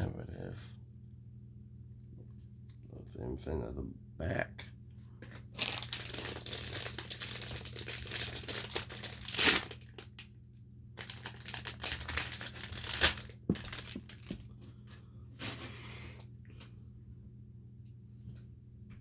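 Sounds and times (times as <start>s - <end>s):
packaging crinkling: 5.2s - 10.3s, 11.0s - 14.5s.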